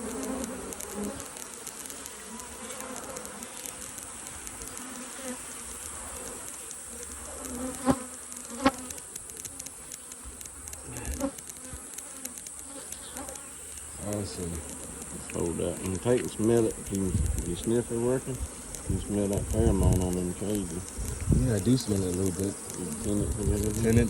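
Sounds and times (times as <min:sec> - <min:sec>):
sharp clicks of cages: 0:00.0 - 0:05.0, 0:05.7 - 0:17.8
bees buzzing: 0:00.0 - 0:24.0.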